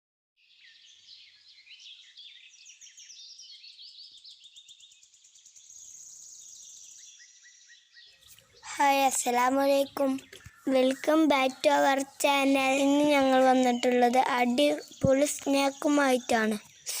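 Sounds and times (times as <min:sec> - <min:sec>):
small birds chirping: 0:00.4 - 0:17.0
high bird trill: 0:08.1 - 0:17.0.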